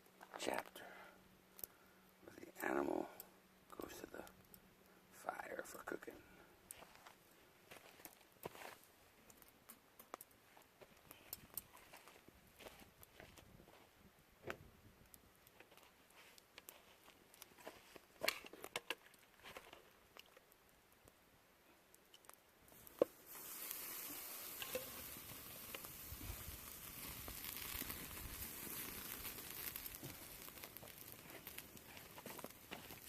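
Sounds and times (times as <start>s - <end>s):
clicks and crackles: 1.5s - 1.8s, 7.9s - 13.5s, 14.4s - 21.2s, 21.8s - 33.0s
steak sizzling over campfire: 15.0s - 21.2s, 21.9s - 33.0s.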